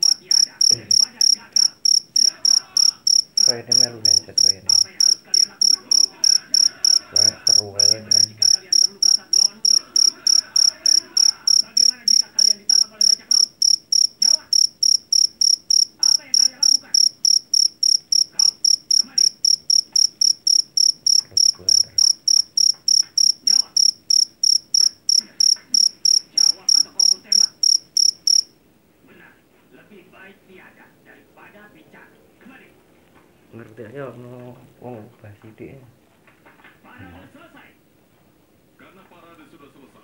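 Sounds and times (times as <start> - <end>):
cricket chirping: 0.0 - 28.6.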